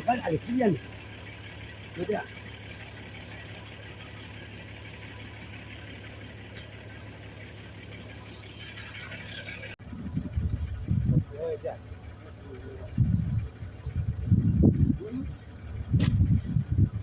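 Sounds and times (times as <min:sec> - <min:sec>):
engine running steadily: 0:00.0 - 0:17.0
loud uneven low rumbling: 0:06.4 - 0:17.0.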